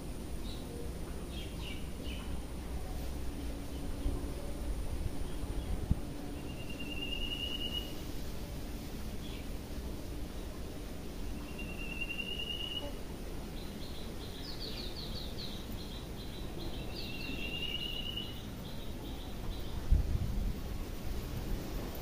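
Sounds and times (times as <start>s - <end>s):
low background noise: 0.0s - 22.0s
bird high whistled notes: 6.4s - 8.0s, 11.5s - 12.9s.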